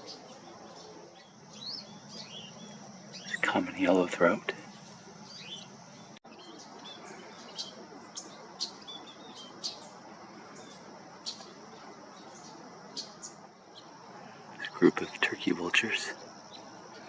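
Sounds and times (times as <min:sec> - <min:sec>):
small birds chip notes: 0:00.0 - 0:17.0
steady outdoor hiss: 0:00.0 - 0:17.0.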